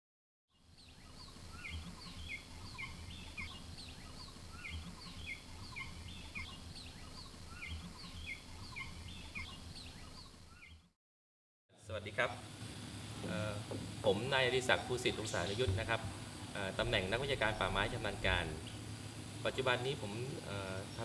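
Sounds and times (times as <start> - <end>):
birds chirping and whistling: 0.8 - 10.9
low steady rumble: 13.0 - 20.8.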